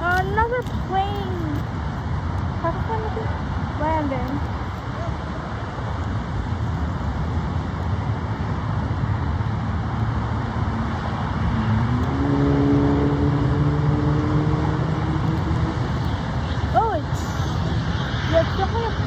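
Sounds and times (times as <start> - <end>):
small plane engine droning: 5.2 - 19.0.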